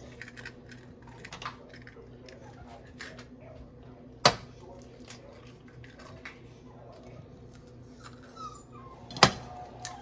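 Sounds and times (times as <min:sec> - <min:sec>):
dog whimpering: 0:07.9 - 0:10.0.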